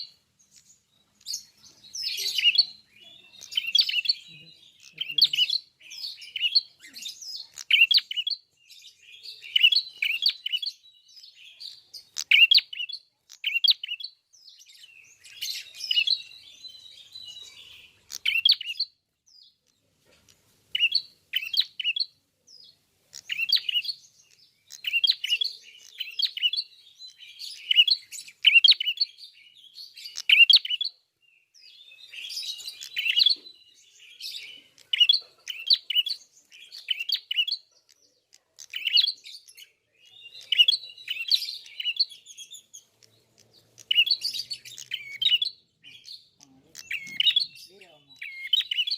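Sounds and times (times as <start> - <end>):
bird singing high sharp chirps: 0.0 - 19.7, 20.7 - 48.9.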